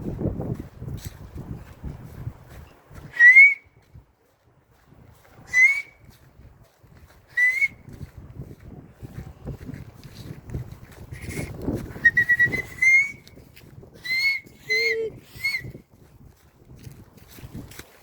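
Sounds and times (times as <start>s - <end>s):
short rising whistles: 12.0s - 13.2s.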